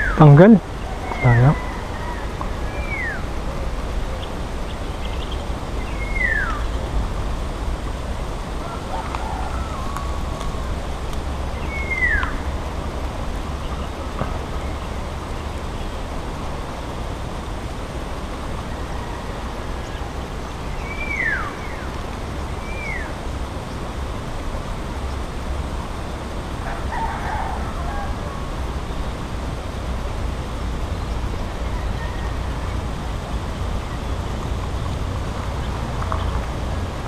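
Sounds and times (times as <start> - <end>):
outdoor noise with low rumble: 0.0 - 37.0
bird whistled call: 0.8 - 3.3, 5.0 - 6.8, 11.6 - 12.5, 20.7 - 21.9, 22.6 - 23.1.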